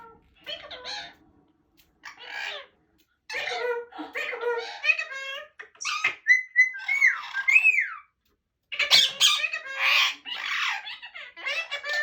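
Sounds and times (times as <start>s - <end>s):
parakeet squawking: 0.0s - 1.2s, 2.0s - 2.7s, 3.3s - 8.1s, 8.7s - 12.0s
parakeet whistling: 5.9s - 8.0s.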